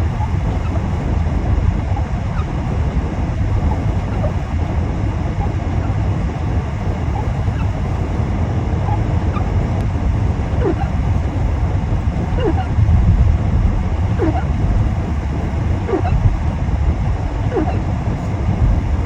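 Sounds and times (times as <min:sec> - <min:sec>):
car driving rumble: 0:00.0 - 0:19.0
faint short squeaks: 0:03.6 - 0:04.5, 0:10.6 - 0:11.0, 0:15.9 - 0:16.2, 0:17.5 - 0:17.9.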